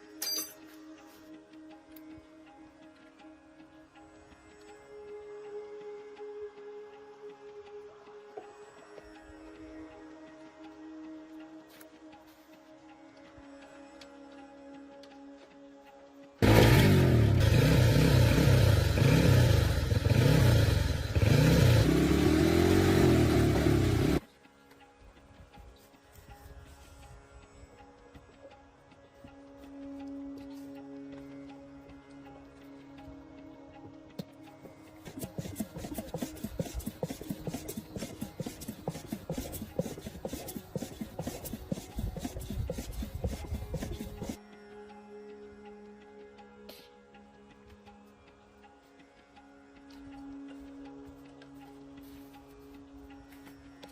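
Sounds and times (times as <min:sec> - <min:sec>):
motorcycle engine revving: 0:16.4 - 0:24.2, 0:35.1 - 0:44.4
rapid rubbing and scraping: 0:35.0 - 0:44.4.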